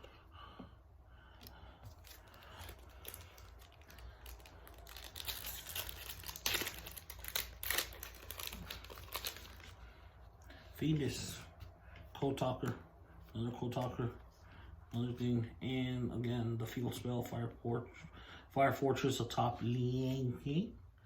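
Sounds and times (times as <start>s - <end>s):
foil wrapper crinkling: 1.8s - 9.8s
foil ripping: 2.0s - 9.8s.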